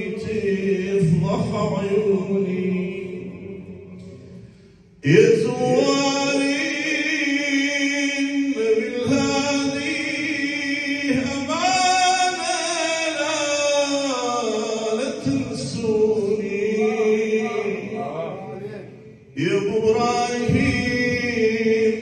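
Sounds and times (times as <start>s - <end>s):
male voices chanting: 14.9s - 22.0s.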